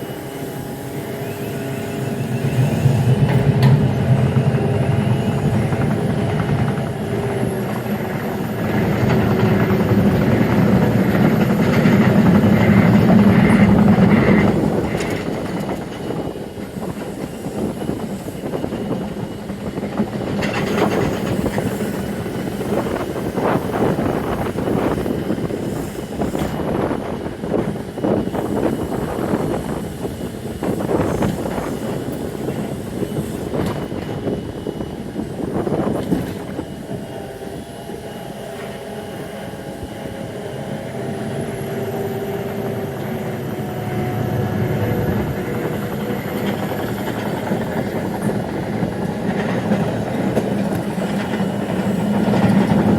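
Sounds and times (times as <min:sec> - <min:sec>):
locomotive engine hum: 0:00.0 - 0:52.9
train wheels clattering on track: 0:00.0 - 0:52.9.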